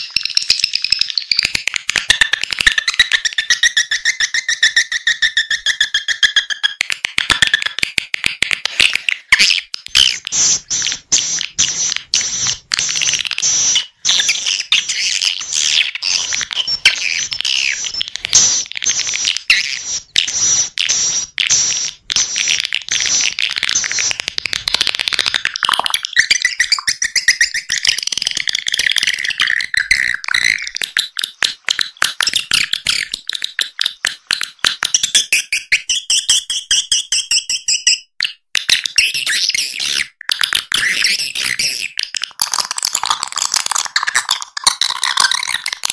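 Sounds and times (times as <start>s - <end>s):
high-pitched twittering chirps: 2.7s - 6.8s, 9.4s - 31.3s.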